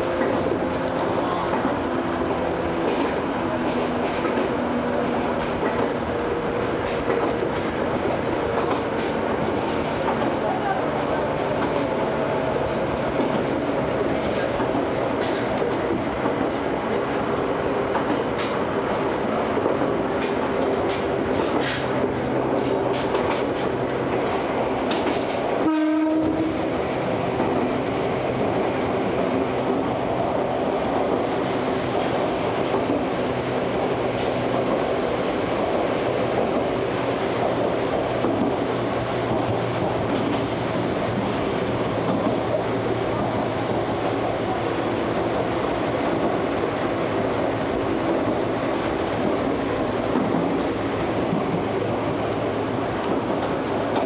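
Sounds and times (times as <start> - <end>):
clatter over rails: 0.0 - 10.5, 12.6 - 17.1, 17.8 - 25.6
train wheels rumbling: 0.0 - 54.0
train horn blast: 25.6 - 26.7.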